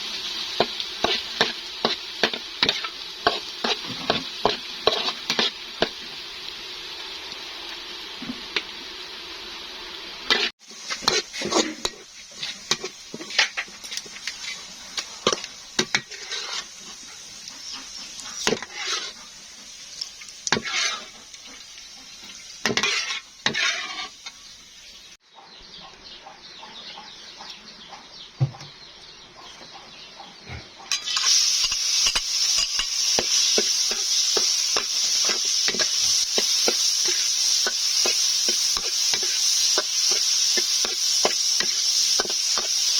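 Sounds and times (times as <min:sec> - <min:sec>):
food sizzling: 0:00.0 - 0:25.2, 0:30.9 - 0:42.9
metal utensils scraping a pan: 0:00.6 - 0:06.0, 0:10.3 - 0:24.5, 0:30.9 - 0:42.9.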